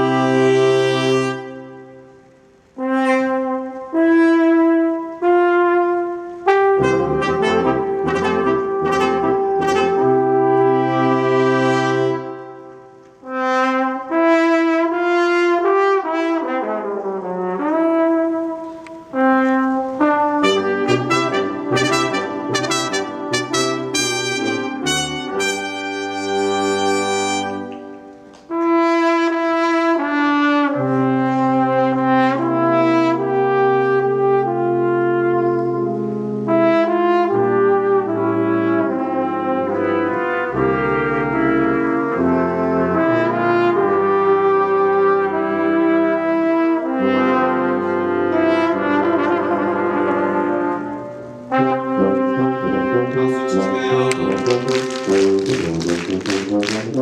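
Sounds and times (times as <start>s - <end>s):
brass quintet playing: 0.0s - 57.0s.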